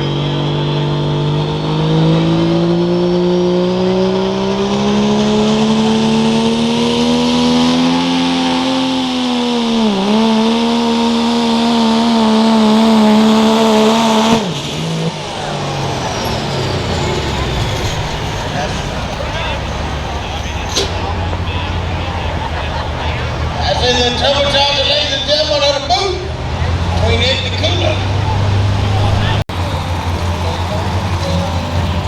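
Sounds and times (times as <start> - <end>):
diesel engine pulling hard: 0.0 - 32.0
announcer speaking: 15.2 - 32.0.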